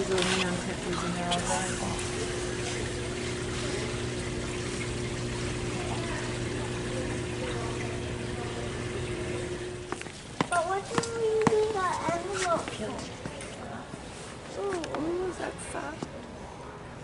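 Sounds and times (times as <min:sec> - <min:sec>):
water trickling: 0:00.0 - 0:12.0
low pump hum: 0:00.0 - 0:12.3.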